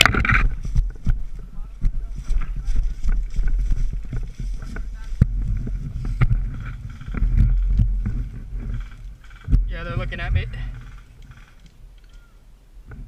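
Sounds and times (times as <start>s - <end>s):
wind noise: 0.0s - 13.0s
sharp clicks: 6.2s - 12.3s.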